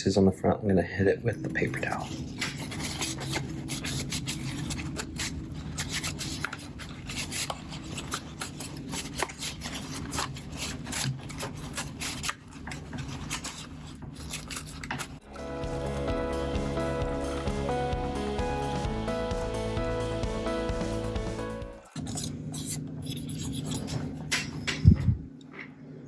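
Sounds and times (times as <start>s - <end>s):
rubbing on plastic: 1.6s - 15.2s
background music: 15.2s - 21.9s.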